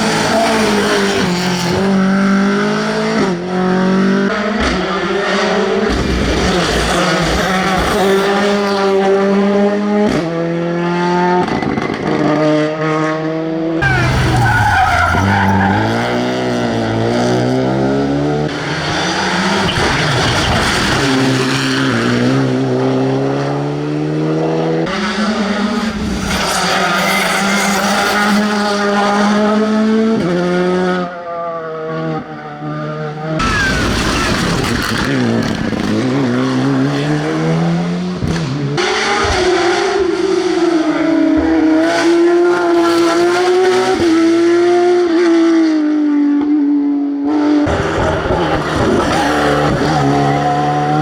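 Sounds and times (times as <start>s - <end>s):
rally car engines revving: 0.0s - 51.0s
tyre squeal: 13.8s - 17.2s, 18.6s - 22.2s, 24.9s - 29.5s, 33.4s - 35.3s, 47.7s - 51.0s.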